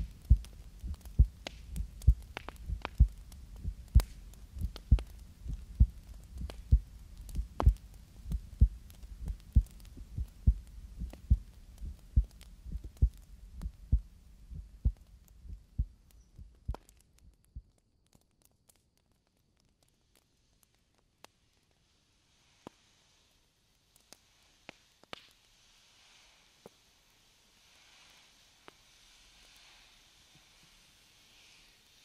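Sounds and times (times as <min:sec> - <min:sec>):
heartbeat thumps: 0:00.0 - 0:16.0
faint low hum: 0:00.0 - 0:17.9
faint clicks: 0:00.0 - 0:21.8.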